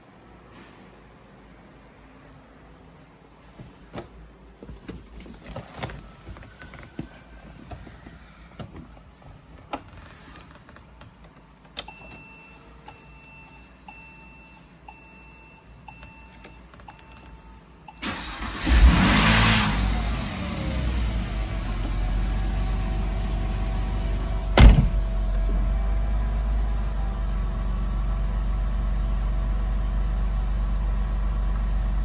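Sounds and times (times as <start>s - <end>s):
car engine cold start: 18.0s - 32.0s.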